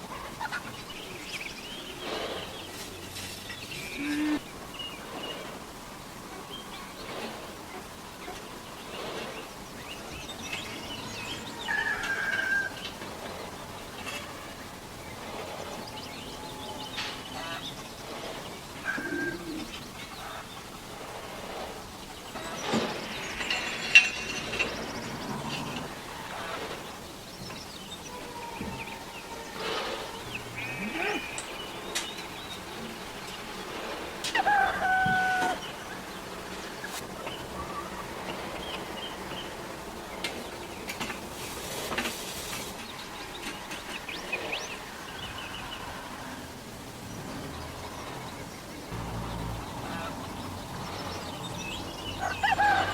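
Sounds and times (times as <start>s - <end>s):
birds calling and chirping: 0.0s - 52.9s
loud bird call: 28.0s - 32.9s.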